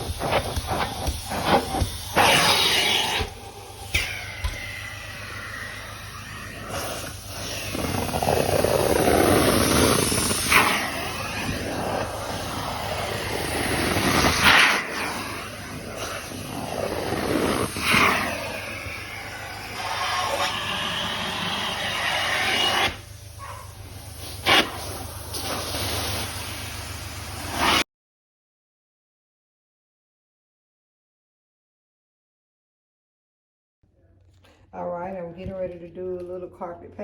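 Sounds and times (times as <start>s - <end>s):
carpet extraction wand hissing: 0.0s - 27.8s.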